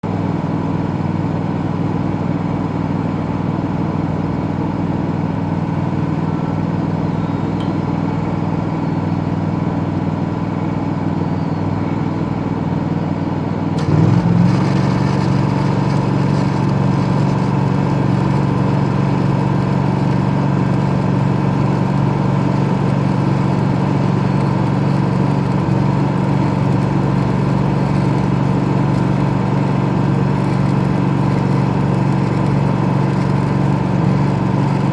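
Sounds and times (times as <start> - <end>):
welding machine engine running: 13.7 - 34.9.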